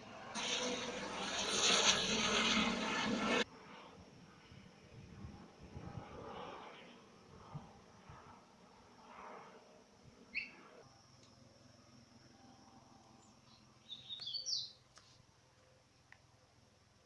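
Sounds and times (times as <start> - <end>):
bird chirping: 10.3 - 10.6, 13.2 - 14.8.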